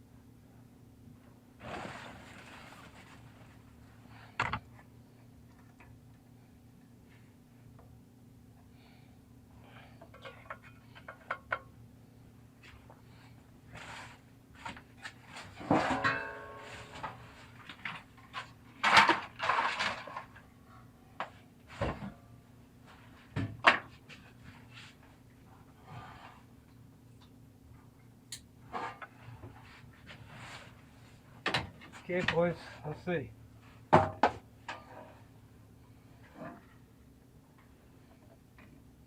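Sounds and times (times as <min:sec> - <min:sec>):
low steady hum: 0:00.0 - 0:39.0
clatter of objects handled: 0:14.6 - 0:20.5.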